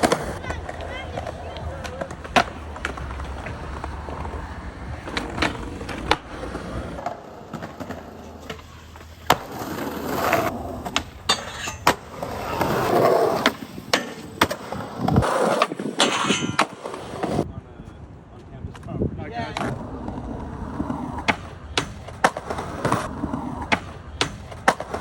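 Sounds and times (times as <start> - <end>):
skateboard wheels rolling: 0.0 - 25.0
skateboard pops and landings: 5.0 - 17.4, 20.8 - 25.0.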